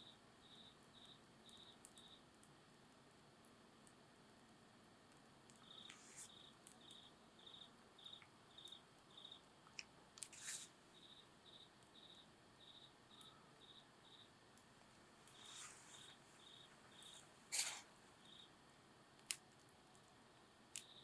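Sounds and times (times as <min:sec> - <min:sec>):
cricket chirping: 0:00.0 - 0:02.4, 0:05.5 - 0:09.5, 0:10.2 - 0:14.6, 0:15.2 - 0:18.6, 0:20.4 - 0:21.0
campfire crackling and popping: 0:19.1 - 0:21.0.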